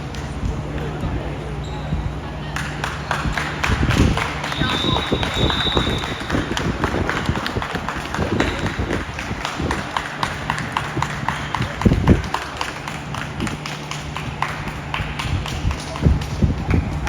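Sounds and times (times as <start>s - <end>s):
low steady hum: 0.0s - 17.0s
shoe squeaks and ball taps: 1.6s - 2.2s.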